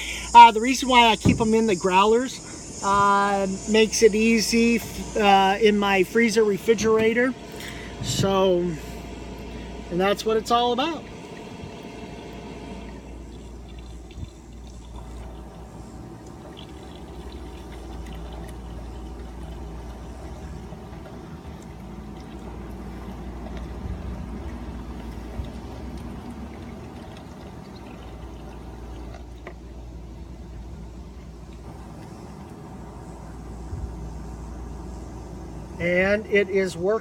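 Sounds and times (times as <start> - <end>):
cider pouring through a funnel: 10.4 - 33.5.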